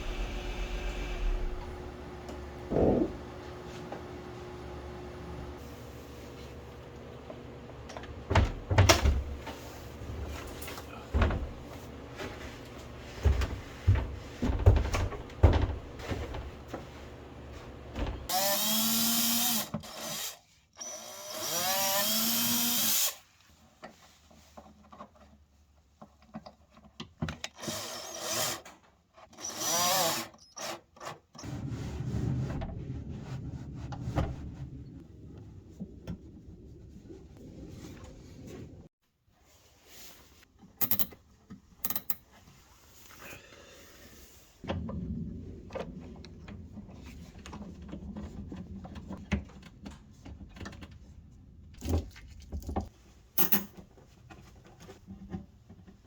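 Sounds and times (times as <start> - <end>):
power drill running: 0.0 - 3.0, 18.3 - 23.2
handling knocks and thumps: 2.4 - 3.3, 13.1 - 16.9.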